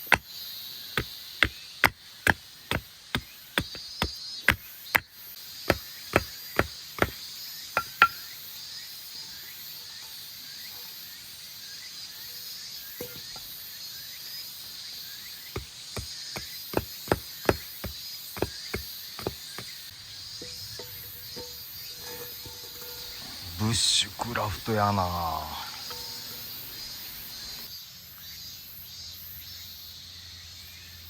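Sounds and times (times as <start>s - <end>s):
wood being chopped: 0.0s - 5.1s, 5.7s - 7.2s, 7.8s - 8.3s, 15.6s - 23.3s, 25.8s - 26.4s.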